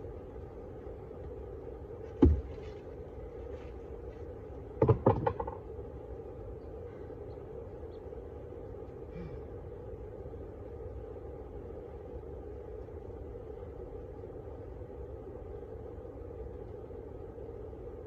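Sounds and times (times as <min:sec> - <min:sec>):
sharp knocks: 0:02.2 - 0:02.6, 0:04.8 - 0:05.6.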